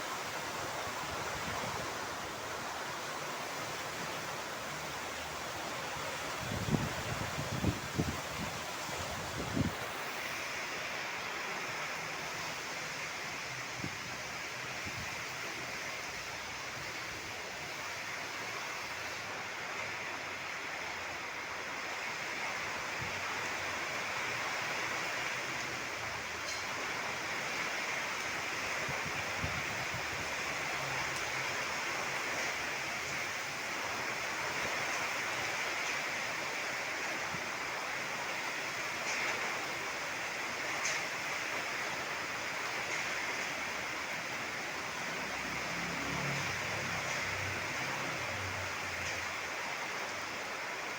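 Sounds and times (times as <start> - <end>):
heavy rain in wind: 0.0 - 50.9.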